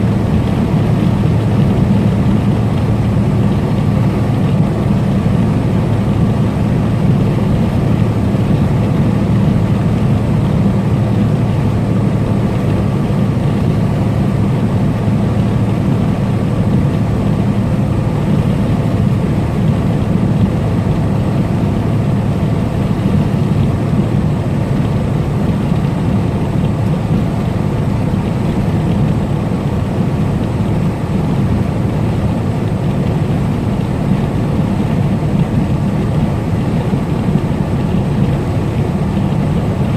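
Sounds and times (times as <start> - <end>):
diesel truck engine droning: 0.0 - 39.9
road and tyre noise: 0.0 - 39.9.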